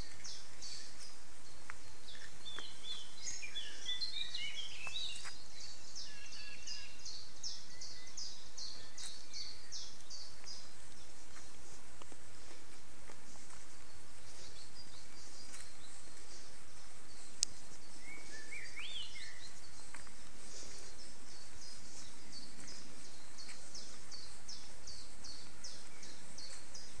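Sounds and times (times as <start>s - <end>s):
songbirds calling: 0.0s - 27.0s
steady background noise: 0.0s - 27.0s.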